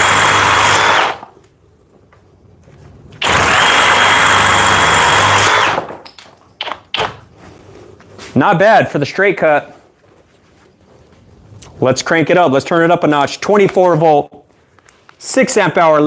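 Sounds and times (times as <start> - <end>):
reciprocating saw cutting wood: 0.0 - 1.3, 3.2 - 5.9.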